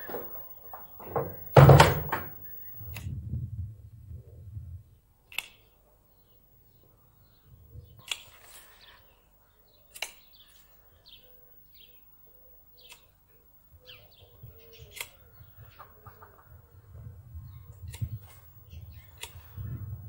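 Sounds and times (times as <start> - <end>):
sharp clicks: 5.3 - 5.7, 9.9 - 10.2
faint small bird chirps: 5.4 - 16.5.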